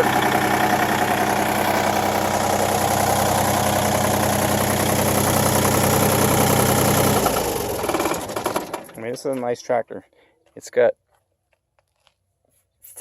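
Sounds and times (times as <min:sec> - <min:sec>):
tractor diesel engine idling: 0:00.0 - 0:09.8.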